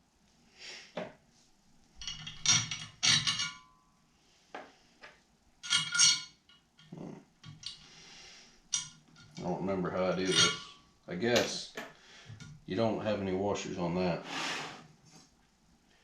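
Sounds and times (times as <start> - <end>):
metal parts clinking: 2.0 - 3.7, 5.6 - 7.8, 8.7 - 9.5, 10.2 - 10.8.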